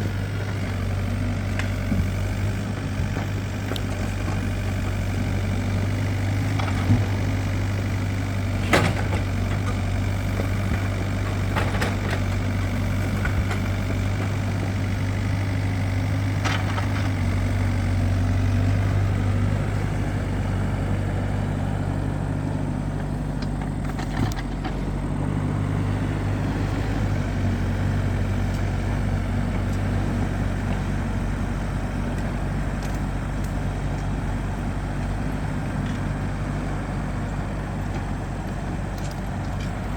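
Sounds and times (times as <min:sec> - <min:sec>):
heavy engine running: 0:00.0 - 0:39.9.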